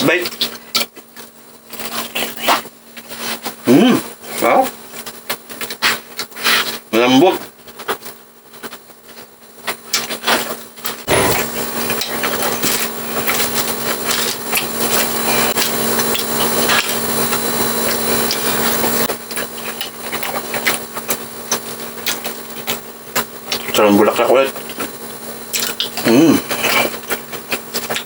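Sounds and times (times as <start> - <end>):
chewing crispy fried food: 9.6 - 23.8, 24.5 - 28.0.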